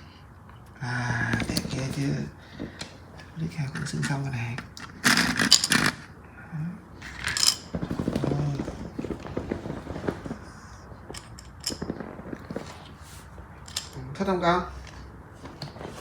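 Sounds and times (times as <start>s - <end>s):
plastic toy bricks clattering: 4.6s - 6.1s, 7.0s - 10.4s, 11.1s - 12.8s, 13.6s - 14.0s.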